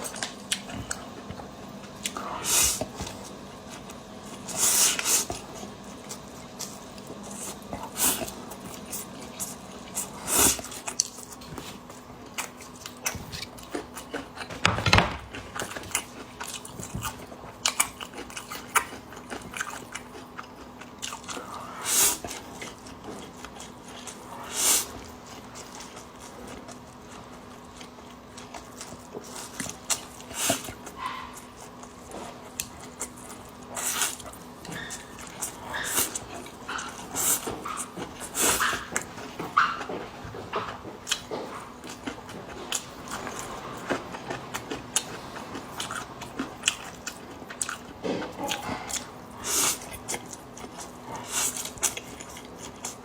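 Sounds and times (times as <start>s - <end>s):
chewing noodles: 15.3s - 53.0s.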